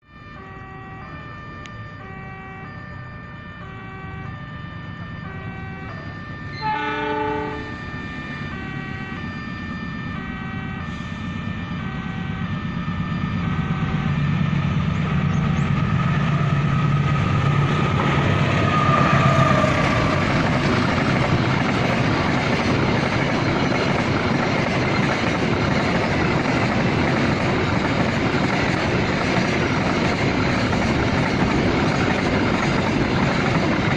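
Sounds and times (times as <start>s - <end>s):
two-tone electronic warning signal: 0.0s - 33.9s
locomotive horn blast: 0.2s - 2.7s, 5.2s - 12.6s, 18.0s - 20.9s
freight train rumbling past: 0.2s - 33.9s.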